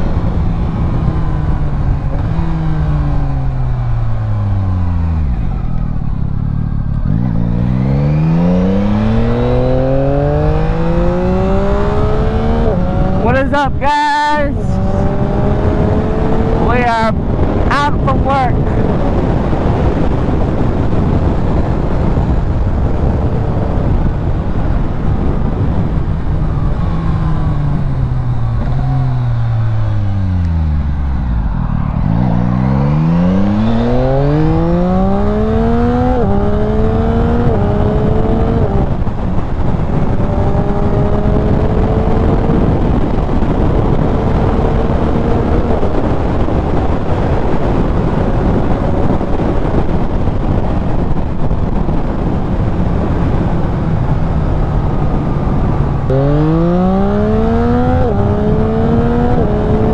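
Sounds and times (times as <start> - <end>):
motorcycle engine revving: 0.0 - 13.7, 14.5 - 59.9
wind and road noise: 0.0 - 59.9.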